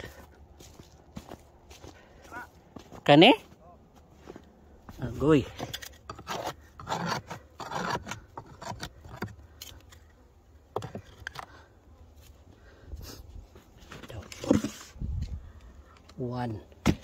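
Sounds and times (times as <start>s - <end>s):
shovel scraping snow: 5.5s - 9.0s.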